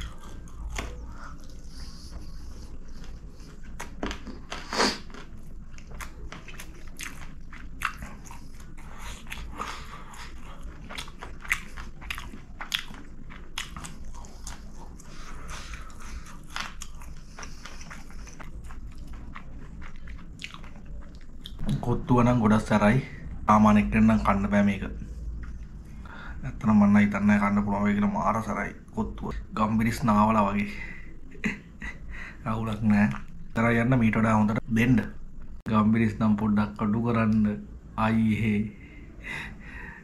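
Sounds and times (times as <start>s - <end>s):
man chewing food: 0.0s - 21.8s, 24.0s - 26.4s, 30.8s - 33.7s.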